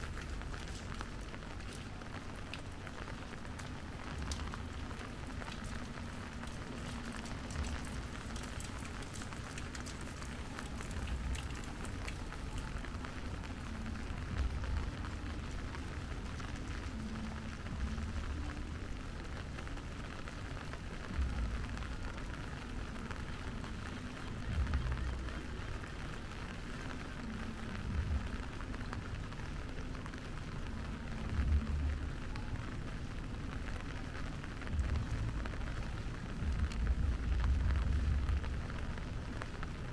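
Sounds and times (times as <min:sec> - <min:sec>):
steady rain hissing: 0:00.0 - 0:39.9
low rumbles: 0:34.5 - 0:39.8.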